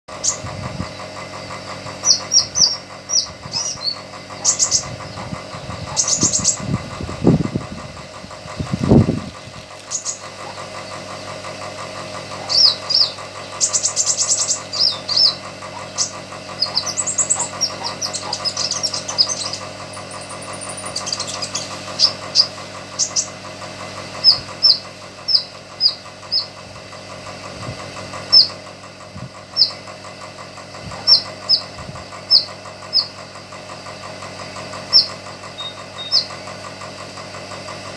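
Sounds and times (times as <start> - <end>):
steady mechanical hum: 0.1 - 37.9
low rumbles: 0.4 - 22.4
songbird chirps and trills: 12.4 - 23.4, 31.0 - 33.2, 34.9 - 36.3.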